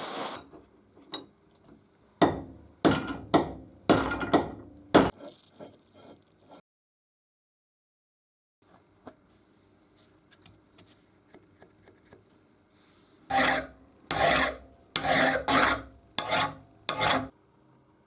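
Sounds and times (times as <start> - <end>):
file scraping steel: 13.3 - 17.3
loud filing strokes: 13.3 - 17.3.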